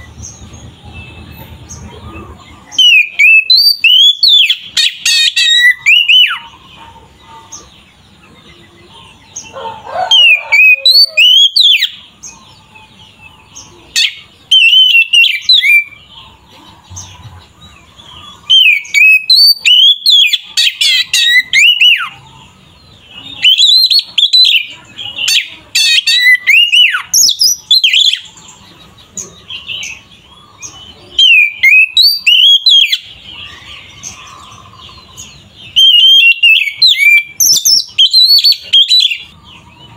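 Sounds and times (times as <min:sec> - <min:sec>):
songbird whistles and chirps: 0:00.0 - 0:06.5, 0:09.5 - 0:17.4, 0:18.3 - 0:22.2, 0:23.0 - 0:28.4, 0:29.2 - 0:39.4.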